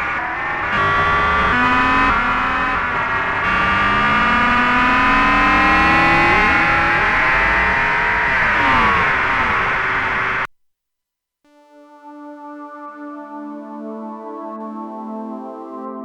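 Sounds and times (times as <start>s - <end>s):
synthesizer noisy wash: 0.0s - 10.5s
synthesizer tones gliding: 0.0s - 10.5s.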